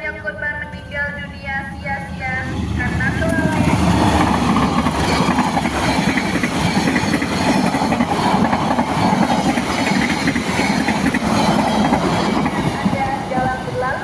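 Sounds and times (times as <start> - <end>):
train wheels clattering over rail joints: 3.6 - 13.0.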